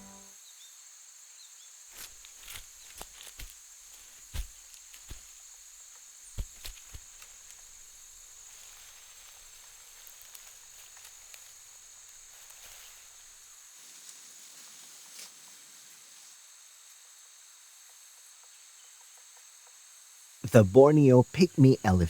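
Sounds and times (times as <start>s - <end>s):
rainforest insects droning: 0.4s - 20.4s
twigs cracking and snapping: 2.0s - 3.6s.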